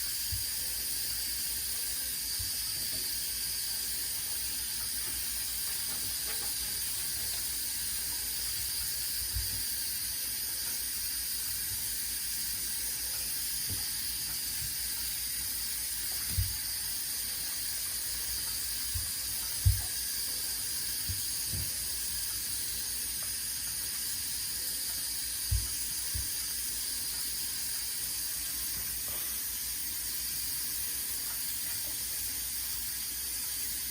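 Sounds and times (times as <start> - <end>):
running water hissing from tap: 0.0 - 33.9.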